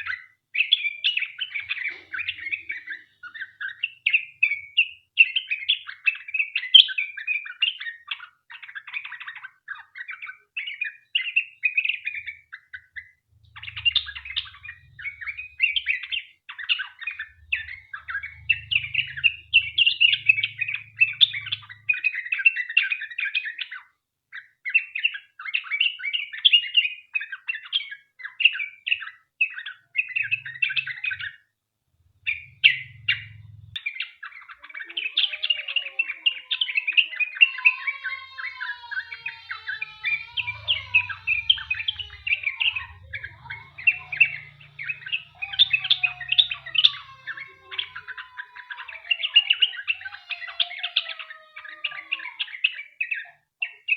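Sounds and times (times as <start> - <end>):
bird singing chattering notes: 0.0 - 23.6, 32.2 - 53.9.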